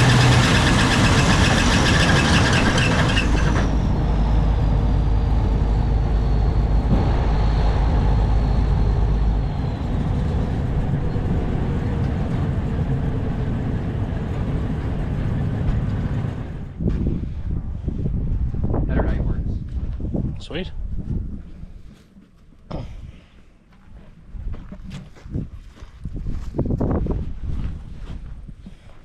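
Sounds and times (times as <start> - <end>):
large vehicle engine running: 0.0 - 18.8.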